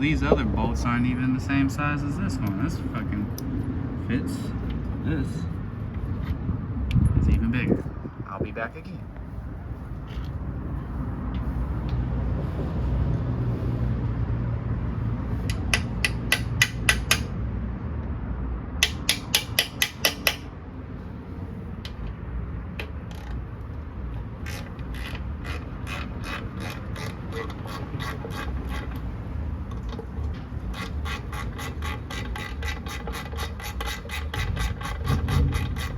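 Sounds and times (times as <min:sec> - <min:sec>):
socket ratchet clicking: 0:15.4 - 0:17.3, 0:18.8 - 0:20.5.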